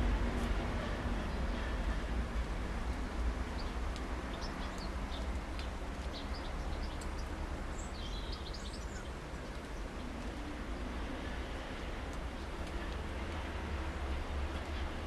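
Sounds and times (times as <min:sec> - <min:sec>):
songbirds chirping: 0:03.0 - 0:13.5.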